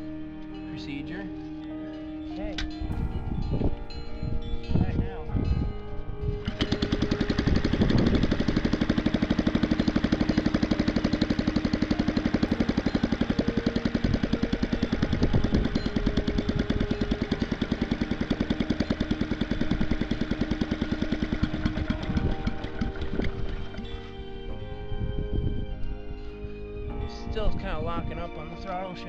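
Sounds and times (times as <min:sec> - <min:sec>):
small engine idling: 0:02.9 - 0:24.9.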